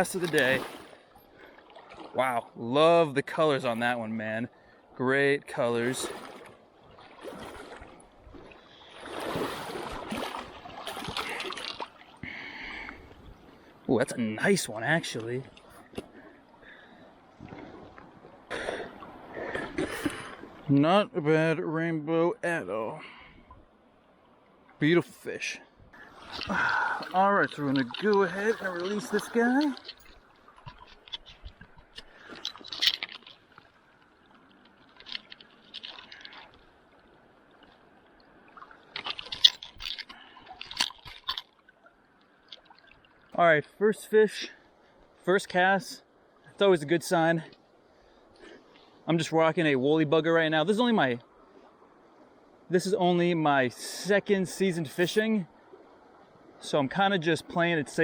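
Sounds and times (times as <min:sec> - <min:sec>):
river water splashing: 0:00.0 - 0:02.6, 0:05.6 - 0:13.8, 0:14.5 - 0:20.8, 0:25.9 - 0:45.4.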